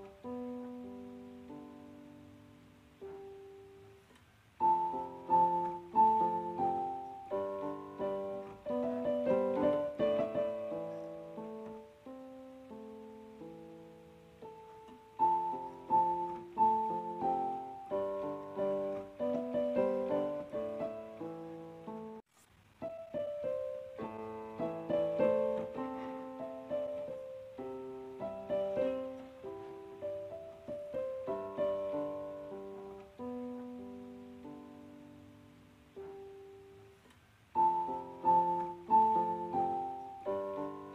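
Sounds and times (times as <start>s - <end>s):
gentle piano music: 0.0s - 40.9s.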